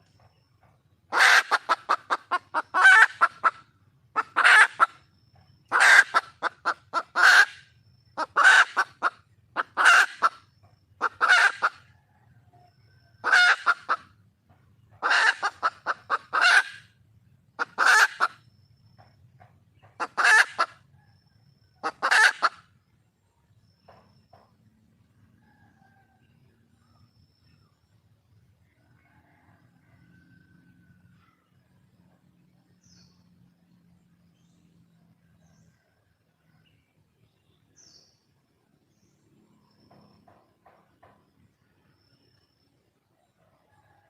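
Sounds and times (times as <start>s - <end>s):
hen clucking: 1.1s - 5.0s, 5.7s - 7.6s, 8.2s - 11.9s, 13.2s - 14.2s, 14.9s - 16.9s, 17.6s - 18.4s, 19.7s - 20.8s, 21.8s - 22.6s.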